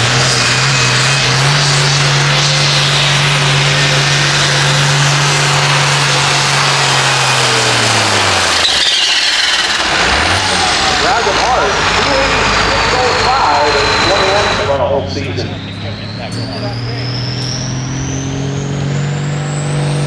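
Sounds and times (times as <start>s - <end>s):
tractor engine at full throttle: 0.0s - 20.0s.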